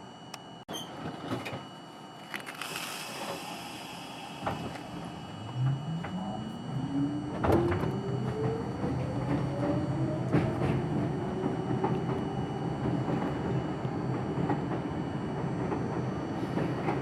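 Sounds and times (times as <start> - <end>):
train motor whine rising: 2.2 - 14.3.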